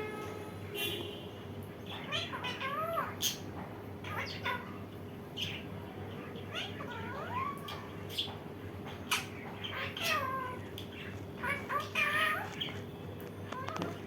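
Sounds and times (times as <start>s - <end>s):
parrot squawks: 1.9s - 3.4s, 4.0s - 4.8s, 6.2s - 8.3s, 9.1s - 12.8s
parrot calling: 1.9s - 12.8s.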